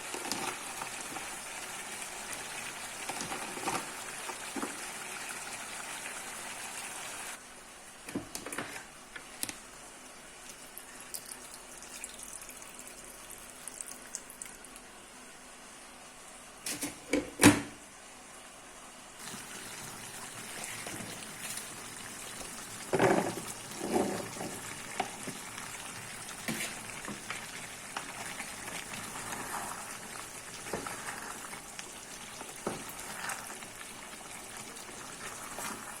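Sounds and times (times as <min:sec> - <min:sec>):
steady cooking hiss: 0:00.0 - 0:36.0.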